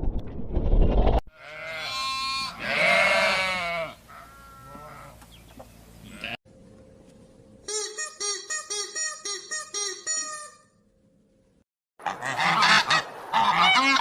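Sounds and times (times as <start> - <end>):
animal bleat-like calls: 1.3 - 5.2, 6.0 - 6.4.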